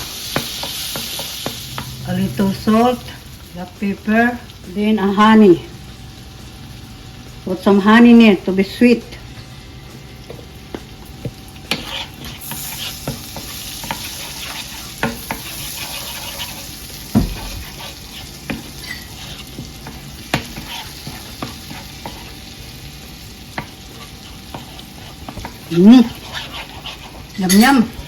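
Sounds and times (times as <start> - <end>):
glaze sizzling in frying pan: 0.0 - 28.0
utensil scraping and tapping pan: 10.3 - 22.3, 23.5 - 27.8.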